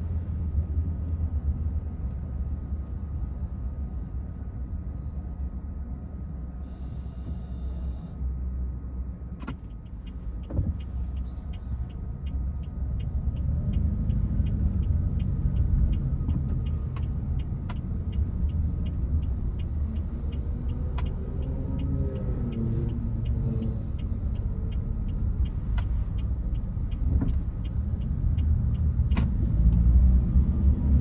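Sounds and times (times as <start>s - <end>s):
car engine and tyre rumble: 0.0s - 31.0s
turn signal ticking: 9.4s - 31.0s.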